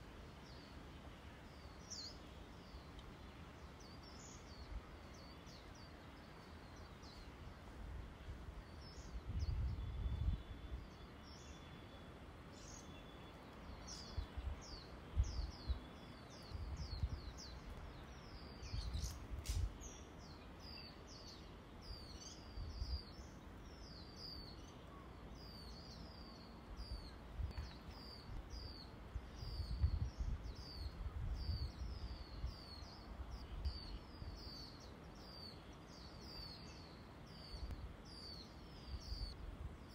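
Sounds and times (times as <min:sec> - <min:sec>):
small birds chirping: 0:00.0 - 0:39.9
wind buffeting microphone: 0:07.8 - 0:10.9, 0:13.9 - 0:15.8, 0:16.4 - 0:17.8, 0:18.4 - 0:19.8, 0:26.8 - 0:34.4.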